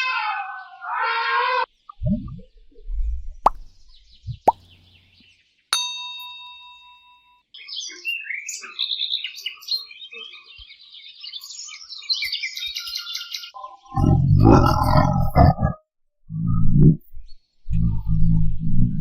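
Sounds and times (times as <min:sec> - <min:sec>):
small songbird chirping: 0:03.4 - 0:13.6
bell-like ding: 0:05.8 - 0:07.4.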